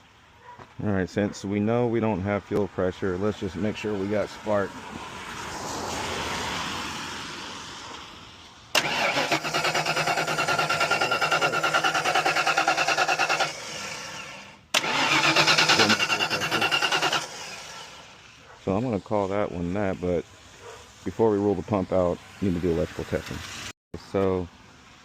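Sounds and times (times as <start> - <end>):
car engine cranking on starter: 8.7 - 18.4.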